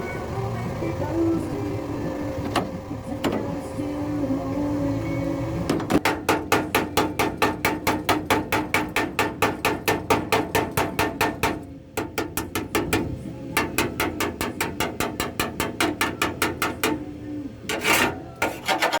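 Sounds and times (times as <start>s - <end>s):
rapid hammer strokes: 6.0s - 17.0s, 17.7s - 19.0s.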